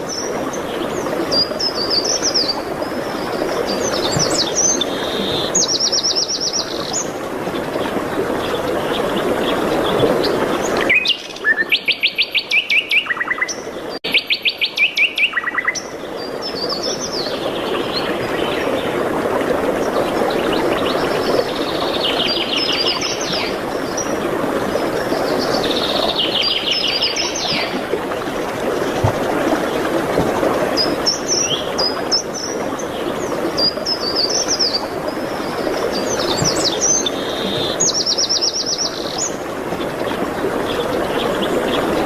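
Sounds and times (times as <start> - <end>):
rushing forest ambience: 0.0 - 42.0
songbirds trilling: 30.6 - 42.0.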